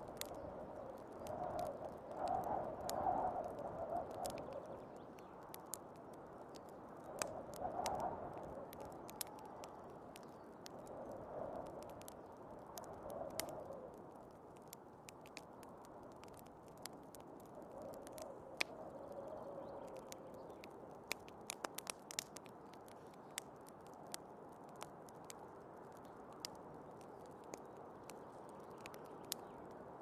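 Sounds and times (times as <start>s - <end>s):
wind gusts: 0.0s - 14.0s
wood fire crackling: 0.0s - 30.0s.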